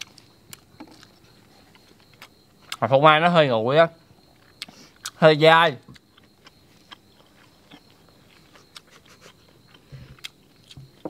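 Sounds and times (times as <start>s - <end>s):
chewing with wet mouth clicks: 0.0s - 2.8s, 5.9s - 11.0s.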